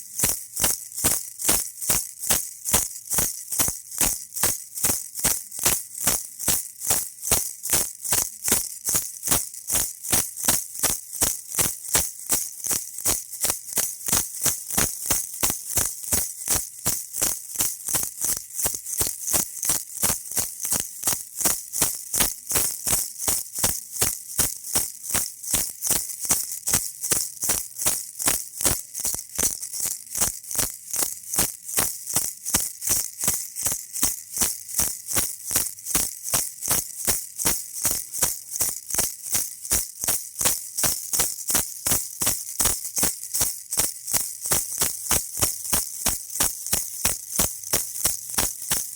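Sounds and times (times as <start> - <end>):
baby rattle shaken: 0.0 - 48.9.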